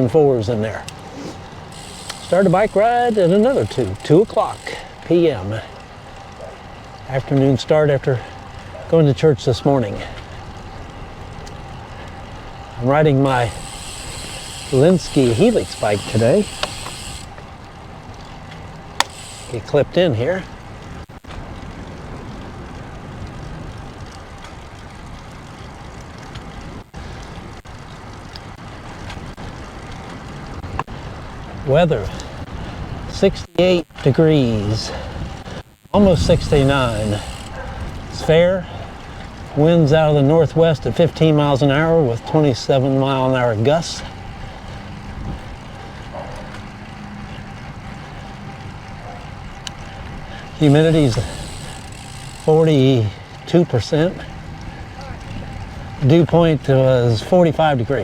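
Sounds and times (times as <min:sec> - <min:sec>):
wind rushing over microphone: 0:34.4 - 0:39.6, 0:44.1 - 0:46.4.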